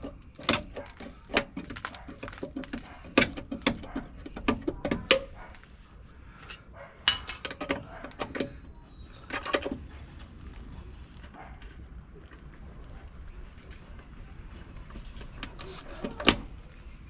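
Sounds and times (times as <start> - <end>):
thin squeak: 8.0 - 9.8.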